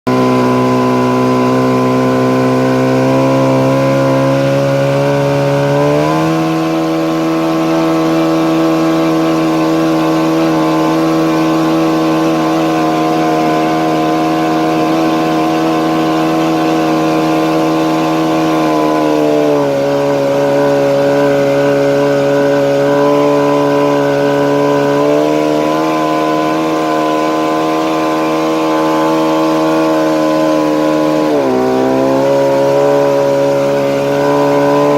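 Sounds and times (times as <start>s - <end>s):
outboard boat motor running: 0.0s - 34.9s.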